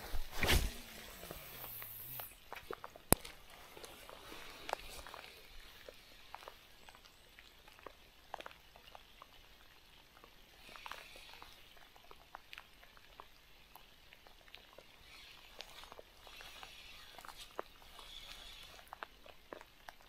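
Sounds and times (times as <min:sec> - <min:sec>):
soft hiss: 0:00.0 - 0:07.6.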